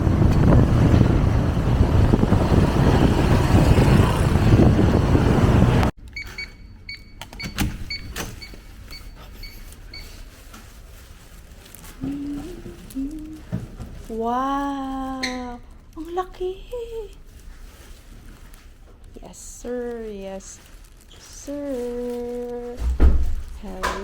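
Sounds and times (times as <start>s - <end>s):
vehicle ride rumble: 0.0s - 6.0s, 7.6s - 24.0s.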